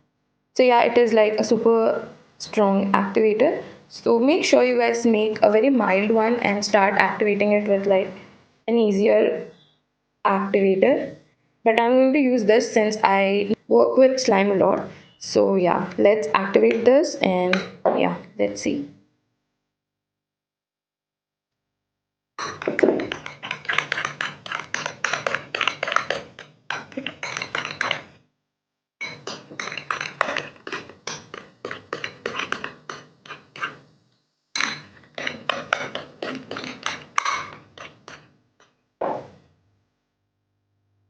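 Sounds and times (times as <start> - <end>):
slime squelching in a bowl: 22.4 - 28.1, 29.0 - 33.8, 34.6 - 38.3.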